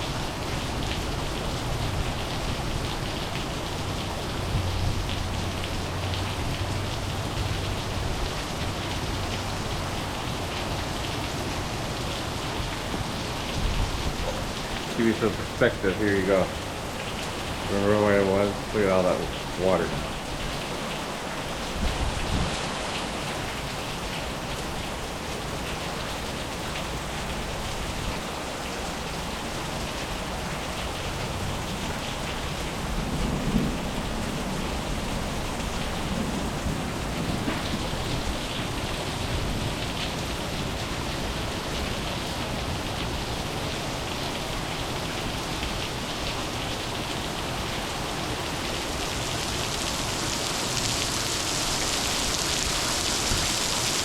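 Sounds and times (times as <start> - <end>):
heavy rain pattering: 0.0 - 54.0
thunder rumble: 32.8 - 39.7.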